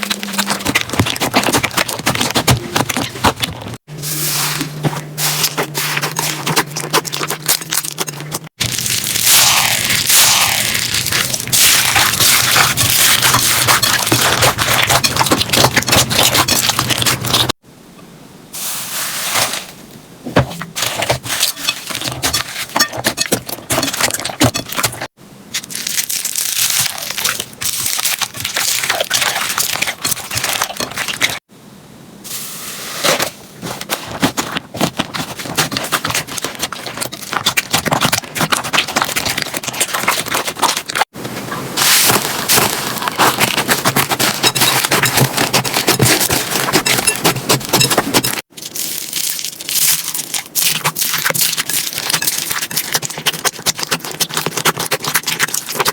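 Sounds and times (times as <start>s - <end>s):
slime crackling and popping: 6.1s - 17.5s, 25.5s - 31.4s, 47.7s - 55.9s.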